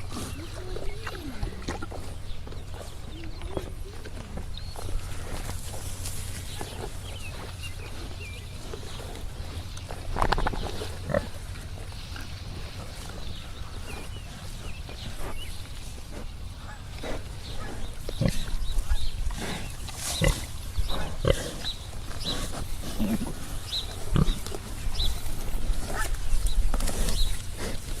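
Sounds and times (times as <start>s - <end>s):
pigs grunting and squealing: 0.0s - 5.5s, 16.6s - 25.2s.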